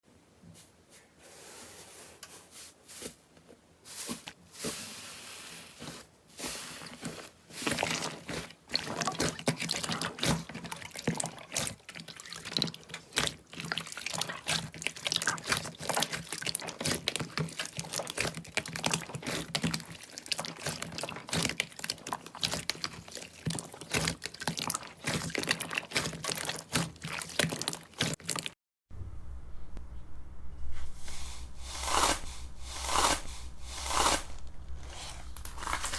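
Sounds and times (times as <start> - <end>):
slime squished by hand: 7.1 - 28.5.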